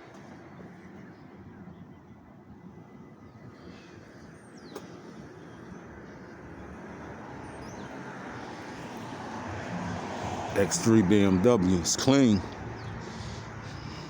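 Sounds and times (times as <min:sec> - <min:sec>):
passing vehicle: 0:04.6 - 0:14.0.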